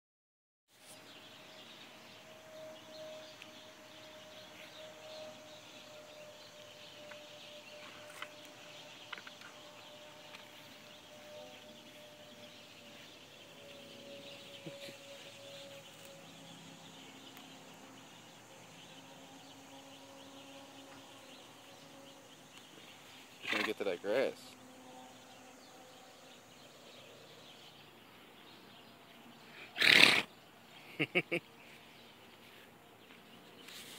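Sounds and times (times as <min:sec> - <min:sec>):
birds chirping: 0:00.8 - 0:33.9.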